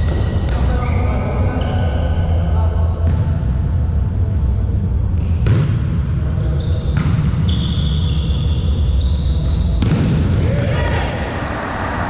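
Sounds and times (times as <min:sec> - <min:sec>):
low rumble of hall: 0:00.0 - 0:12.0
volleyball smacks: 0:09.8 - 0:10.3.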